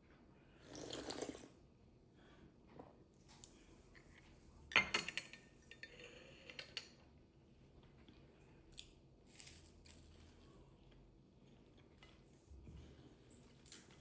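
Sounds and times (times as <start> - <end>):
utensils and dishes clinking: 4.7 - 7.0.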